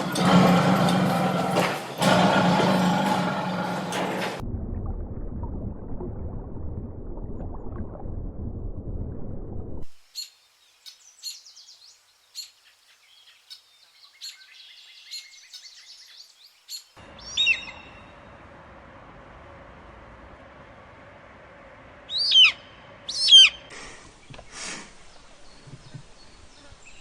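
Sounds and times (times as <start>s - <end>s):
low rumbling noise: 0.0s - 9.9s, 17.0s - 24.4s
birds chirping and calling: 12.4s - 18.2s, 22.1s - 27.0s
steady hiss: 23.7s - 27.0s.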